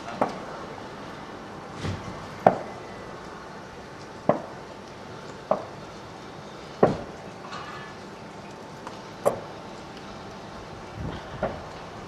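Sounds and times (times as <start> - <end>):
firework pops: 4.2 - 4.6.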